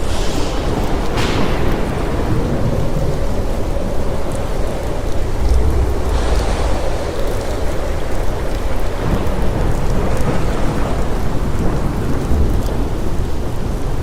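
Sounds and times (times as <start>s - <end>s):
heavy rain: 0.0s - 14.0s
thunder rumbling: 0.0s - 14.0s.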